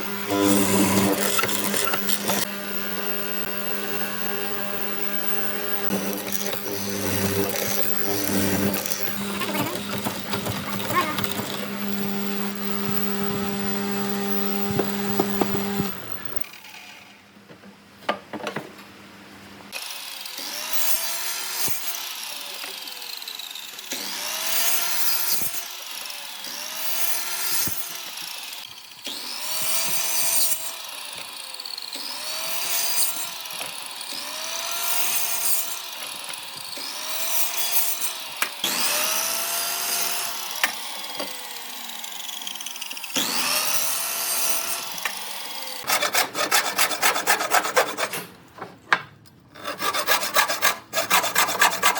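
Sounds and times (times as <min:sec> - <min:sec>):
power tool cutting wood: 0:00.0 - 0:17.1, 0:19.7 - 0:48.4, 0:49.6 - 0:51.9
rubbing strokes on wood: 0:49.6 - 0:51.9.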